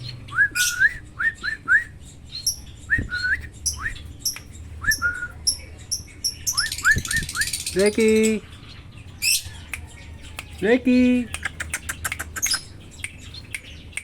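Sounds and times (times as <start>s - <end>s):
bird chirping and whistling: 0.0s - 8.4s, 11.3s - 14.0s.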